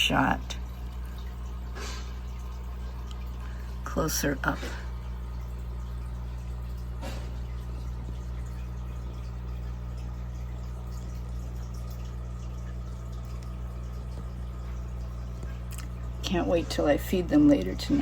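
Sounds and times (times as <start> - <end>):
aquarium filter hum: 0.0 - 18.0
faint trickling water: 0.0 - 18.0.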